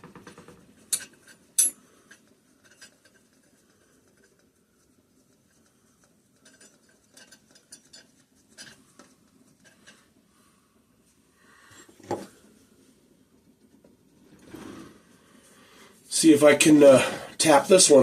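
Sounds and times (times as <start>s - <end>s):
metal bolt clinking and scraping: 0.9s - 4.4s, 6.0s - 10.1s.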